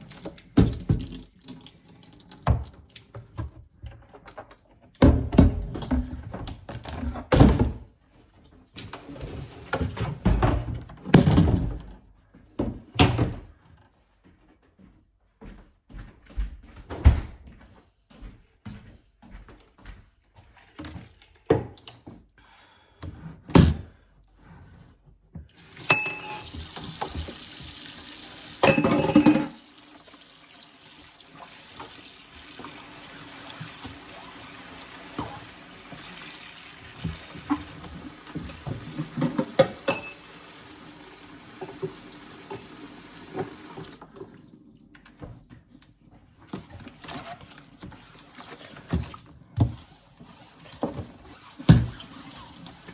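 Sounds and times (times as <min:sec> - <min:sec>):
tap running into sink: 0:00.1 - 0:03.6, 0:25.7 - 0:29.6, 0:31.2 - 0:40.3.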